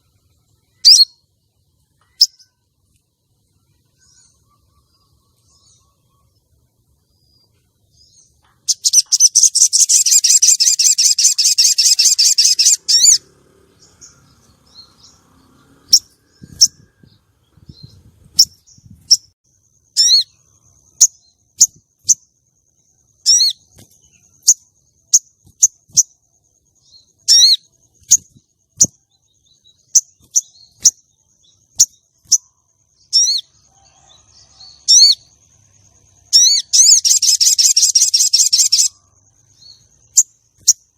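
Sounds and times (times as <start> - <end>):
faint steady high tone: 0.0 - 15.2
sharp bird chirps: 0.0 - 40.9
bird rattling trill: 8.7 - 13.2.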